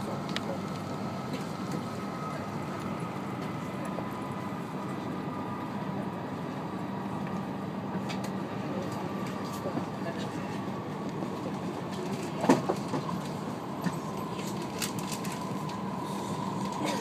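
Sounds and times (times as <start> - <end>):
train cabin rushing noise: 11.2 - 17.0.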